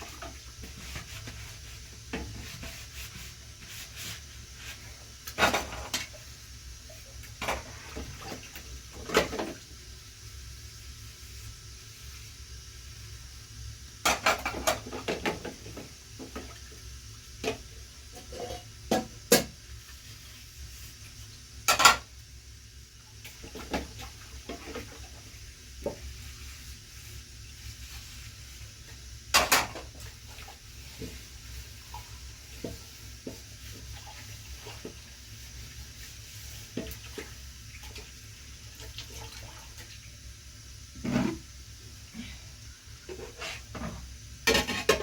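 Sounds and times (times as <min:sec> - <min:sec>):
faint steady hiss: 0:00.0 - 0:45.0
dishes and utensils clinking: 0:21.7 - 0:22.1, 0:29.3 - 0:29.9.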